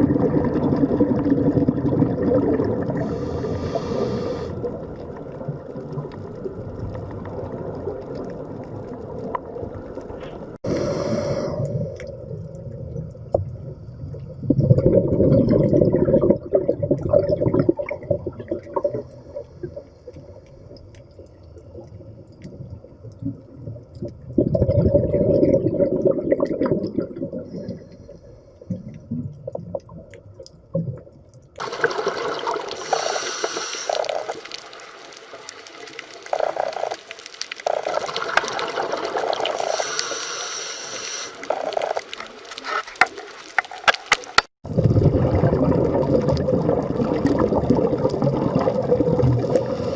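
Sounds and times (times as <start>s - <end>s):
bubbling gurgles: 0.0s - 28.0s, 28.7s - 49.9s.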